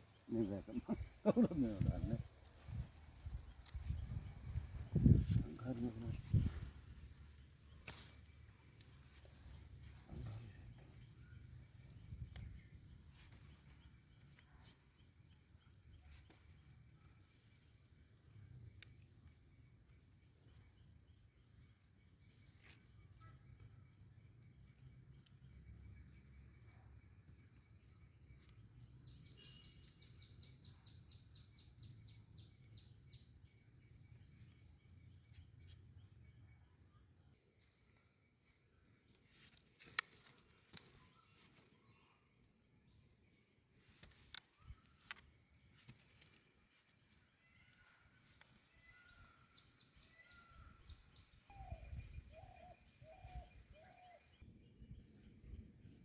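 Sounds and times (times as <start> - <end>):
bird calling: 0.0 - 2.3
birds chirping: 0.0 - 36.9, 37.6 - 55.6.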